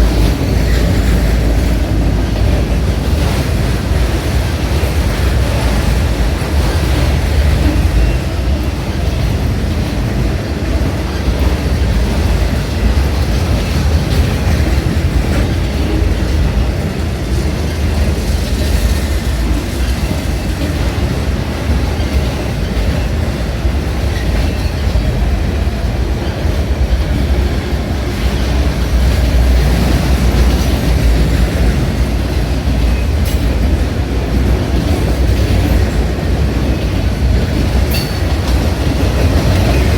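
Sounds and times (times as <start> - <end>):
freight train rumbling past: 0.0 - 39.9
wheels clattering on rails: 0.0 - 39.9.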